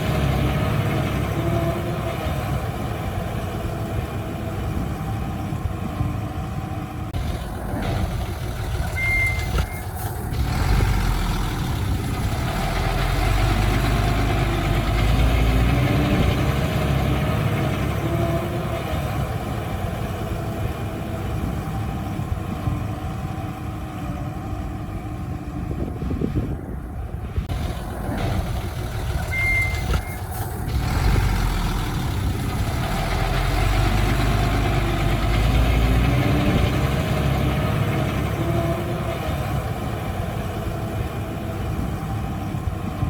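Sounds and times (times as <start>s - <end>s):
heavy machinery diesel engine: 0.0s - 43.0s
short high beep: 8.9s - 9.9s, 29.3s - 30.2s.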